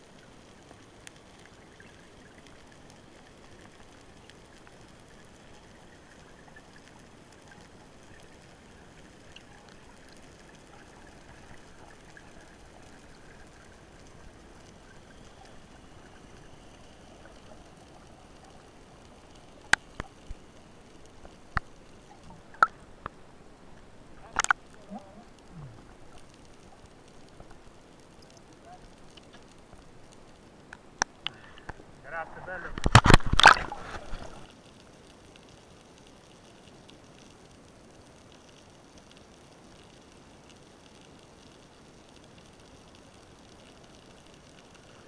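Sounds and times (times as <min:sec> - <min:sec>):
underwater hiss with crackling: 0:00.0 - 0:45.0
sharp underwater knocks: 0:32.7 - 0:34.4.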